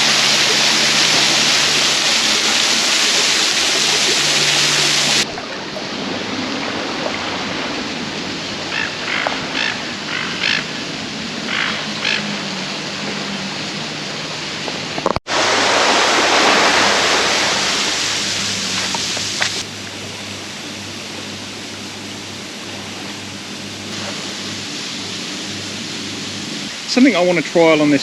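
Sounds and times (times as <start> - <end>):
running water rushing: 0.0 - 28.0
animal calls: 8.7 - 10.8, 11.4 - 12.6.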